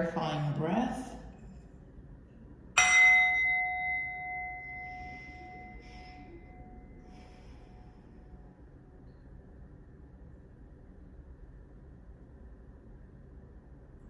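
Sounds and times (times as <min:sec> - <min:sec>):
small metal bell ringing: 0:02.8 - 0:06.8.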